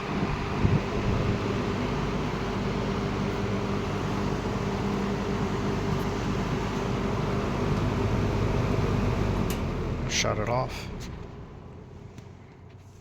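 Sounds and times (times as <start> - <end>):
box fan air rush: 0.0 - 9.4
low motor hum: 0.0 - 13.0.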